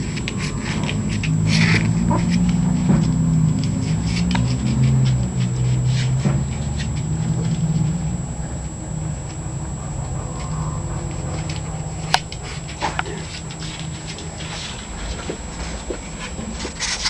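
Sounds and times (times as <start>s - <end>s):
dog whining: 1.4s - 2.8s, 9.5s - 13.6s.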